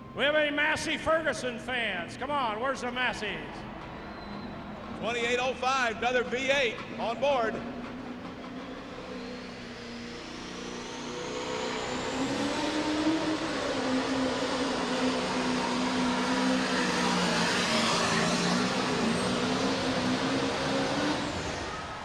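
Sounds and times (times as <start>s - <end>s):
pulling tractor engine running hard: 3.4s - 22.0s
high whine rising in pitch: 8.1s - 22.0s.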